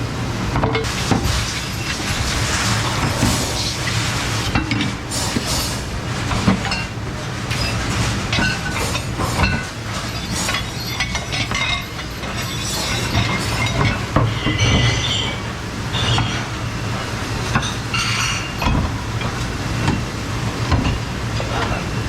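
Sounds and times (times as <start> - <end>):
low machine hum: 0.0 - 22.0
dishes and cutlery clattering: 7.5 - 16.6, 17.5 - 20.1.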